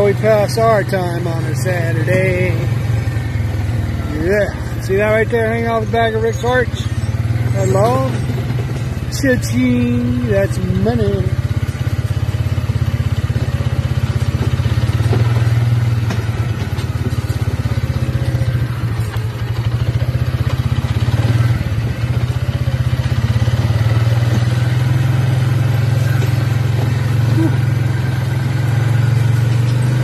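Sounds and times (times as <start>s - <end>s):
small engine running: 0.0s - 30.0s
light knocks and clatter: 13.2s - 20.8s.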